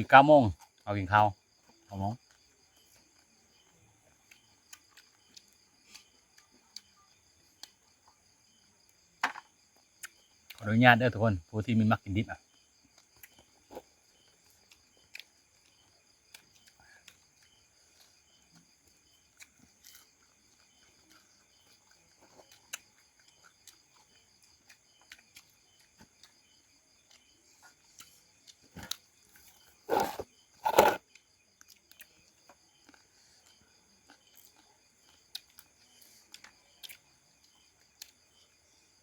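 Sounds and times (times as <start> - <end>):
insects chirring: 0.0 - 39.0
person chewing: 13.0 - 26.4, 27.0 - 32.1, 32.8 - 37.0
loud short sounds: 29.9 - 31.0.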